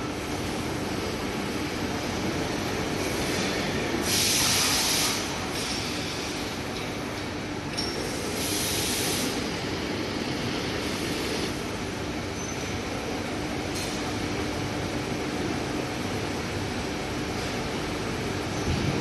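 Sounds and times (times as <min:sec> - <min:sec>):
machine hum and rumble: 0:05.1 - 0:19.0.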